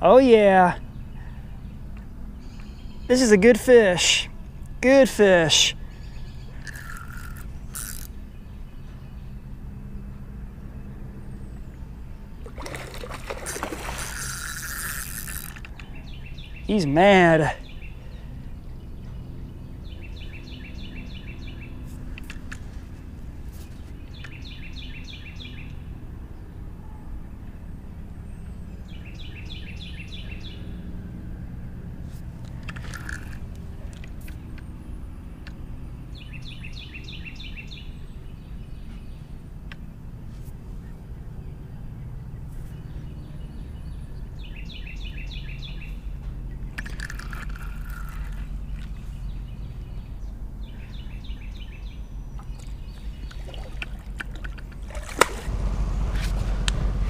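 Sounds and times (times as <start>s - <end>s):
low outdoor rumble: 0.0s - 57.0s
songbird trilling: 5.5s - 8.9s, 36.1s - 38.8s, 43.2s - 46.0s.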